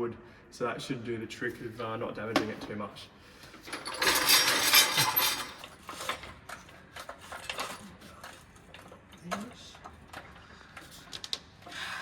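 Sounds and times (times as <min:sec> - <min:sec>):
light metal clinks and knocks: 0:03.7 - 0:09.0.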